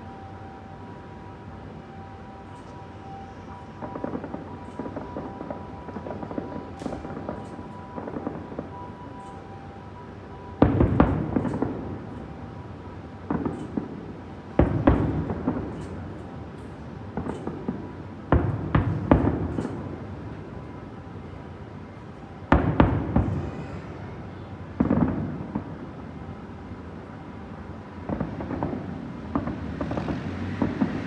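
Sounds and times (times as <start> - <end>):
small firework bangs: 3.8 - 9.4, 10.6 - 12.1, 13.2 - 16.2, 17.1 - 20.2, 22.5 - 24.1, 24.8 - 25.9, 28.0 - 31.0
fireworks booming bursts: 22.5 - 24.2, 24.8 - 25.9, 28.0 - 31.0
fireworks crackling: 28.0 - 31.0.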